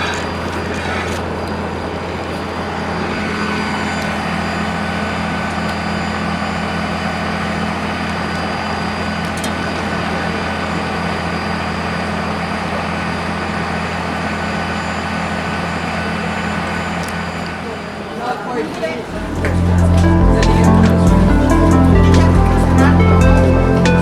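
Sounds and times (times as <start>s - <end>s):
large engine humming: 19.0s - 24.0s.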